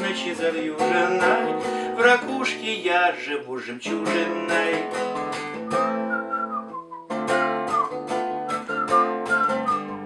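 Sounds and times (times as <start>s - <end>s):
acoustic guitar strumming: 0.0s - 10.0s
whistled melody: 5.3s - 10.0s.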